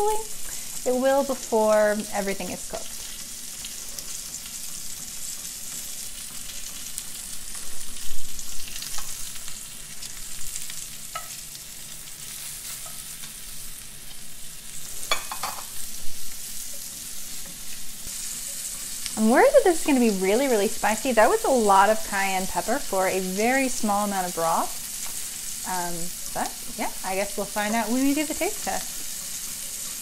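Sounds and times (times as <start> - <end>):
fish sizzling in a skillet: 0.0 - 30.0
utensils clinking against pan: 15.0 - 15.8.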